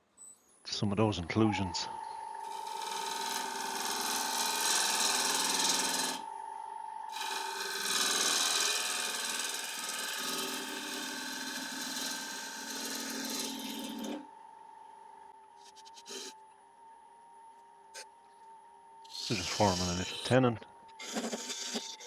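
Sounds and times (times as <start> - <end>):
wood lathe whine: 1.2 - 22.0
tool cutting wood hiss: 2.4 - 6.3, 15.6 - 16.4, 19.1 - 22.0.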